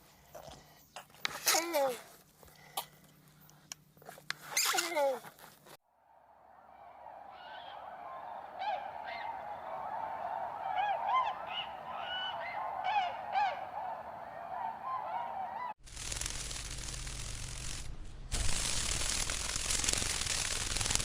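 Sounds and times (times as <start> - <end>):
steady harsh noise: 15.8 - 21.0.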